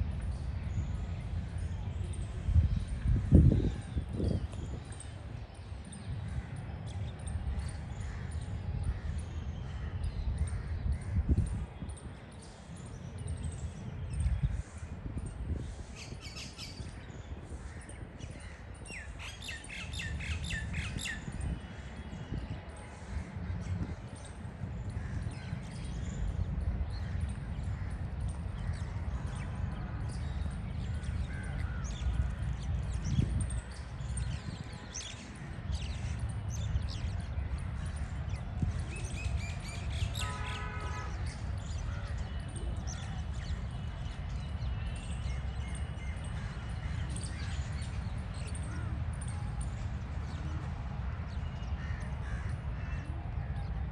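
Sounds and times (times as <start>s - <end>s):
birds chirping: 16.0s - 53.7s.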